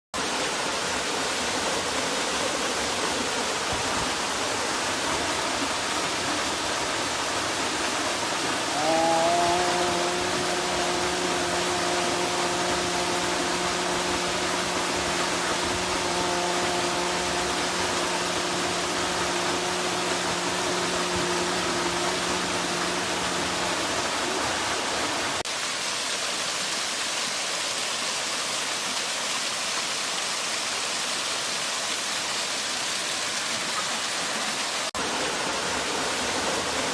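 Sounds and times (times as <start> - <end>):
waterfall rushing: 0.2 - 36.9
droning tone with overtones: 8.6 - 25.4.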